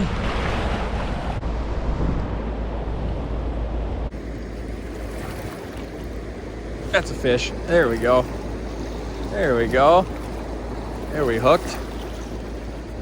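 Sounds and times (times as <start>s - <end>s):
wind rumbling on microphone: 0.0s - 13.0s
river water rushing: 4.1s - 13.0s.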